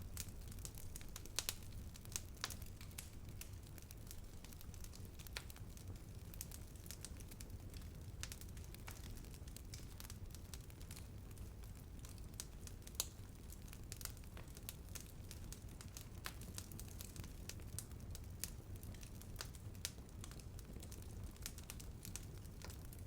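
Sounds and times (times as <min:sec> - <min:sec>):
low fire rumble: 0:00.0 - 0:23.0
wood fire crackling: 0:00.0 - 0:23.0.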